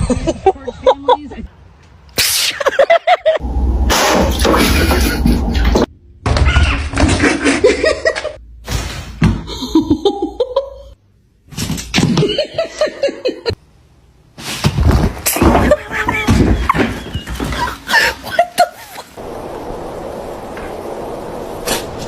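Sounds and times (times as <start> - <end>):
people talking: 0.2 - 1.5
people laughing: 17.4 - 19.2.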